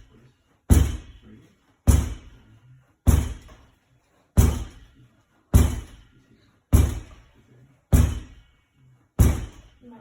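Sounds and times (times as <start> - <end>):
ball thudding against wall: 3.1 - 3.7, 4.4 - 4.9, 5.6 - 6.0, 6.7 - 7.3, 7.9 - 8.4, 9.2 - 9.7.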